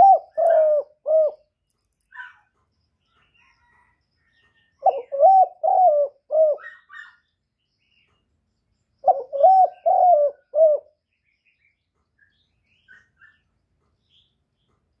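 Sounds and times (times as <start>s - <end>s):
dove cooing: 0.0s - 1.5s, 4.8s - 7.2s, 9.0s - 11.0s.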